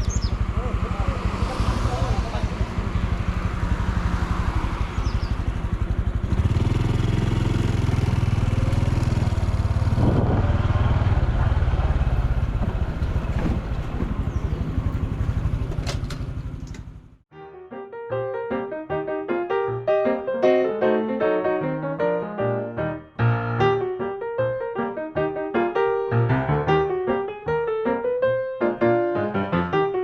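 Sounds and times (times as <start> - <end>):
motorcycle engine running: 0.0 - 17.2
piano music: 17.3 - 30.0.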